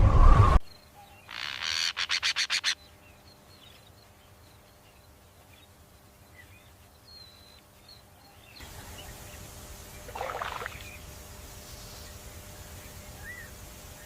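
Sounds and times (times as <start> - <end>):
splash: 10.1 - 10.9.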